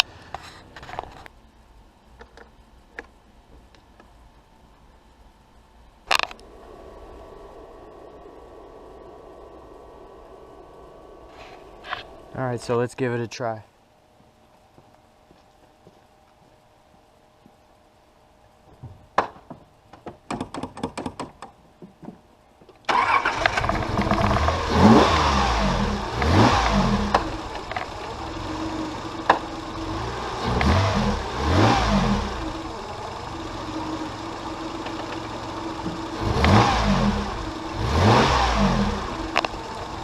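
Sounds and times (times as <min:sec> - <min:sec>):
car engine revving and idling: 0:22.9 - 0:40.0
starter motor cranking: 0:22.9 - 0:40.0.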